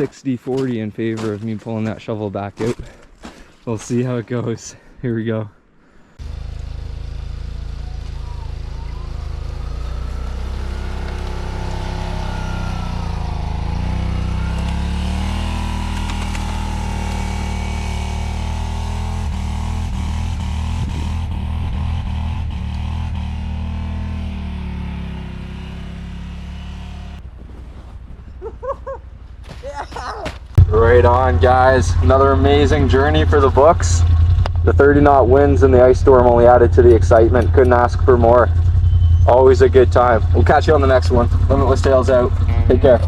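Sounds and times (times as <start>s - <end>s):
vehicle engine driving off: 6.2s - 28.2s, 30.6s - 43.0s.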